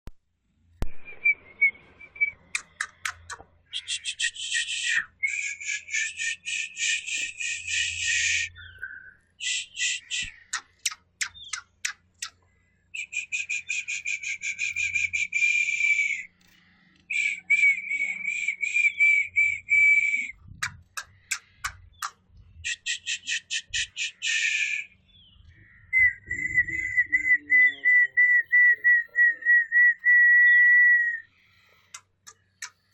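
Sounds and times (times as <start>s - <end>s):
whistled bird notes: 0.8s - 32.9s
sharp bird clicks: 2.2s - 27.1s, 31.5s - 32.9s
sharp clicks: 2.4s - 5.0s, 10.0s - 12.4s, 20.6s - 22.2s, 31.9s - 32.9s
rapid rasping bird chatter: 2.4s - 32.9s.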